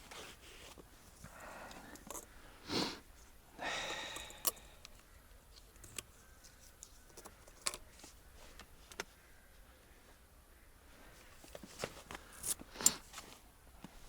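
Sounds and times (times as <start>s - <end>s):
rustling: 11.0s - 14.0s.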